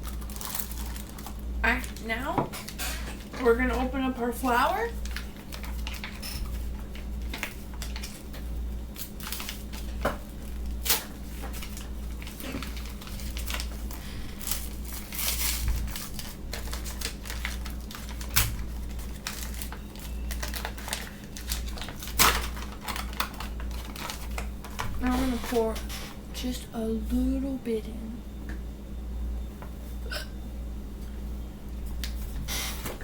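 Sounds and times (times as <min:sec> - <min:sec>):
packaging crinkling and rustling: 0:00.0 - 0:03.9, 0:04.5 - 0:25.8.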